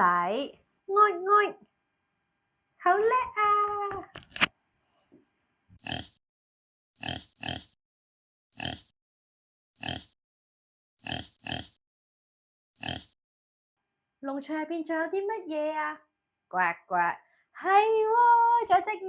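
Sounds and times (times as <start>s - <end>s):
pig grunting: 5.8s - 6.2s, 7.0s - 7.8s, 8.6s - 8.9s, 9.8s - 10.1s, 11.0s - 11.8s, 12.8s - 13.2s.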